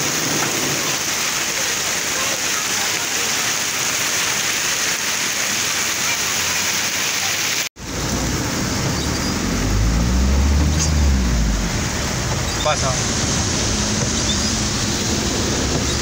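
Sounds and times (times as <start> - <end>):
heavy rain pouring on street: 0.0 - 16.0
car low rumble: 7.8 - 16.0
rain pattering on car window: 11.7 - 16.0.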